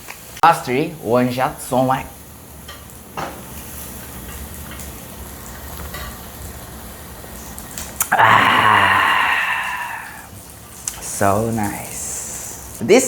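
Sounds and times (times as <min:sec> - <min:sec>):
meat sizzling on a grill: 0:00.0 - 0:13.0
man's long vocal cry: 0:08.0 - 0:10.3.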